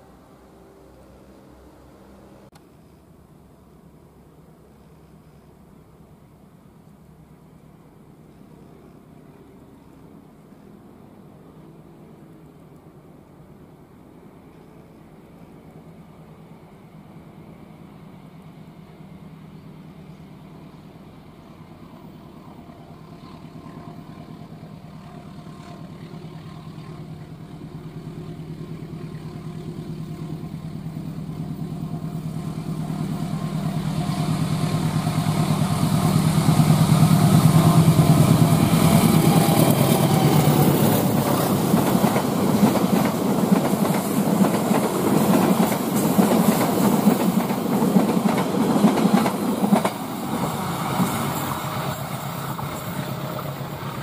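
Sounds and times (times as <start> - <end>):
diesel locomotive engine droning: 0.0 - 2.6, 10.4 - 54.0
train wheels clattering on rails: 31.8 - 54.0.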